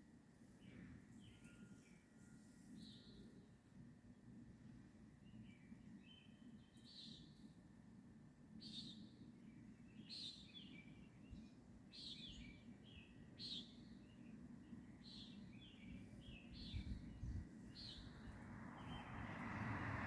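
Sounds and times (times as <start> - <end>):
bird chirping: 9.9 - 19.3.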